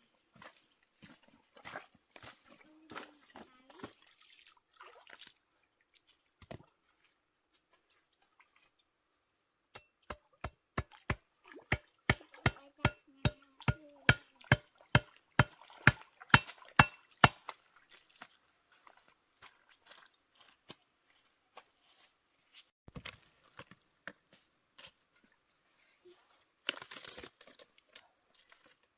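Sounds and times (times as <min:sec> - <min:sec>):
blade chopping on wood: 0:09.8 - 0:17.4.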